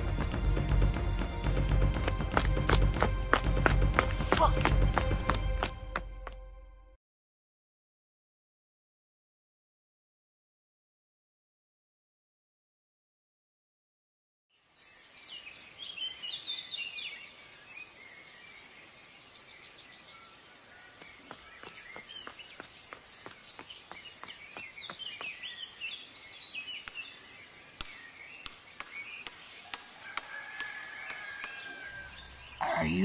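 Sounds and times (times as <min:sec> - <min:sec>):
small birds chirping: 0:14.6 - 0:33.0.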